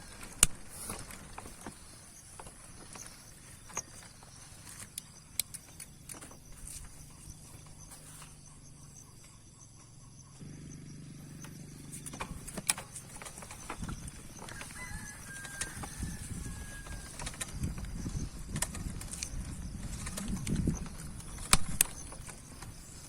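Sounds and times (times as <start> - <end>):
insects droning: 0.0 - 23.0
sharp clicks: 3.7 - 6.9, 16.8 - 23.0.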